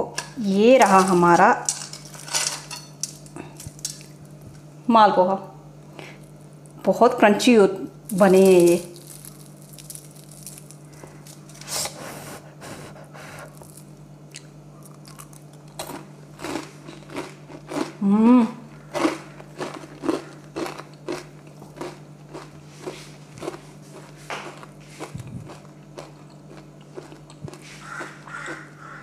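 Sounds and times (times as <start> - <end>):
crunchy chewing: 8.1 - 18.0, 18.7 - 29.0
crunching bite: 8.7 - 11.7, 13.4 - 18.0, 18.8 - 29.0
person humming mmm: 18.0 - 18.7.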